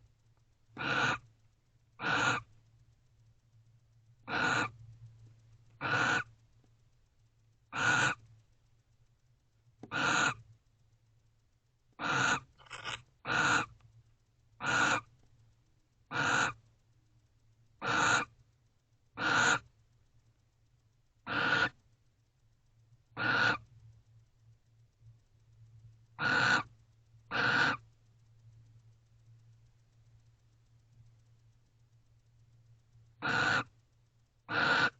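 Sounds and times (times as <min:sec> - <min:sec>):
faint low hum: 0:00.0 - 0:34.9
barn owl calls: 0:00.7 - 0:01.3, 0:02.0 - 0:02.5, 0:04.2 - 0:04.8, 0:05.8 - 0:06.4, 0:07.7 - 0:08.3, 0:09.8 - 0:10.5, 0:12.0 - 0:13.8, 0:14.6 - 0:15.1, 0:16.1 - 0:16.7, 0:17.8 - 0:18.4, 0:19.2 - 0:19.7, 0:21.2 - 0:21.8, 0:23.1 - 0:23.7, 0:26.2 - 0:27.9, 0:33.2 - 0:33.8, 0:34.5 - 0:34.9.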